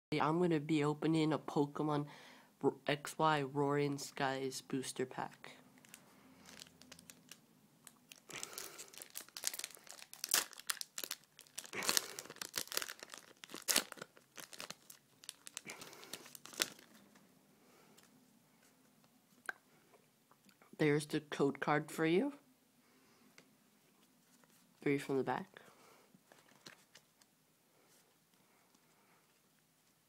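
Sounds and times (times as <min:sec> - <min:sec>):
foil wrapper tearing and crinkling: 0:05.8 - 0:17.0.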